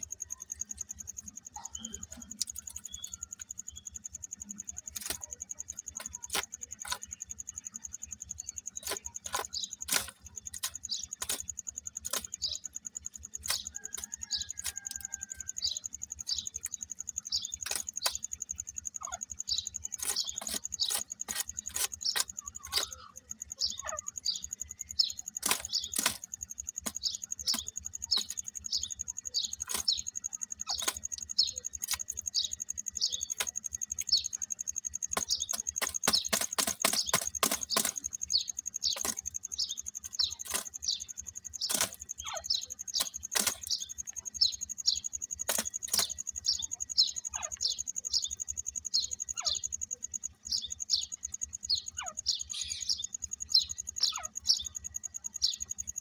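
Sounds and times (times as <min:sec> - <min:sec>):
bird chirping: 0:00.0 - 0:56.0
sharp clicks: 0:04.4 - 0:18.8, 0:19.5 - 0:49.1.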